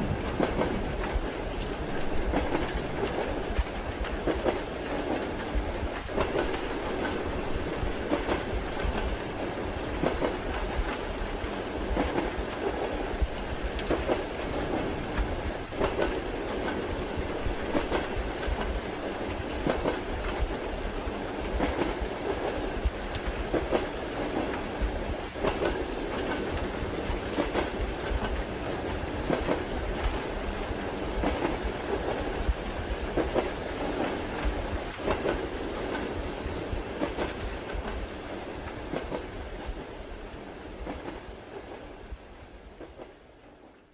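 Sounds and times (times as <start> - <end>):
train carriage rumble: 0.0 - 43.9.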